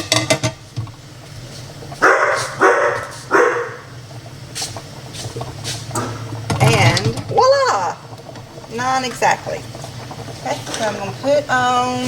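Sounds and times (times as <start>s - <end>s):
dog barking: 2.0s - 3.9s.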